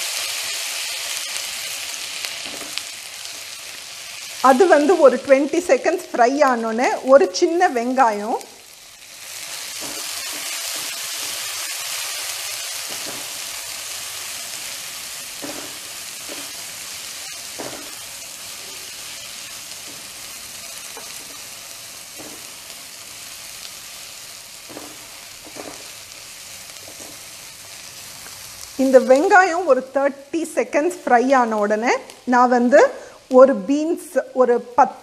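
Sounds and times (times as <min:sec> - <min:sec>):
shallots sizzling in oil: 0:00.0 - 0:35.0
spatula scraping wok: 0:09.0 - 0:23.6, 0:24.6 - 0:29.2.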